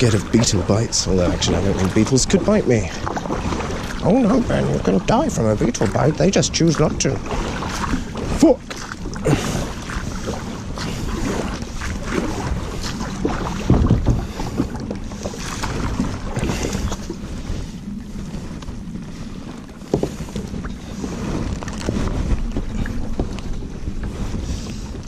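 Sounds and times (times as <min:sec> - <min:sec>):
paddle splashes: 0:00.0 - 0:25.0
wind noise on microphone: 0:00.0 - 0:25.0
canoe knocks: 0:11.8 - 0:17.0, 0:19.8 - 0:20.7.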